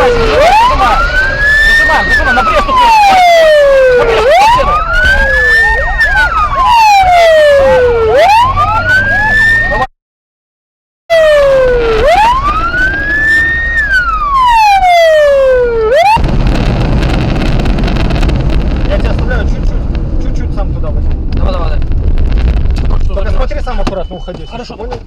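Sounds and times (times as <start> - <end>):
emergency vehicle siren wailing: 0.0 - 9.9, 11.1 - 16.4.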